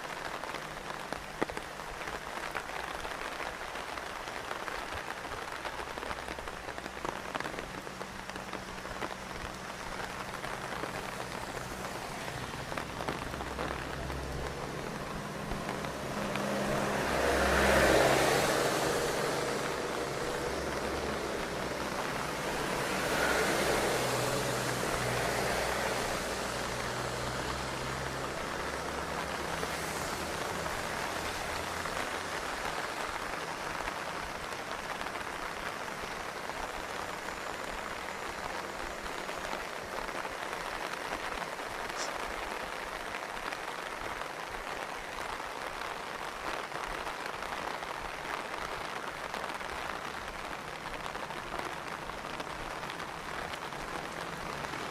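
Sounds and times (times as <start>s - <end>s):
steady rain falling: 0.0s - 54.9s
vehicle engine: 8.2s - 40.6s.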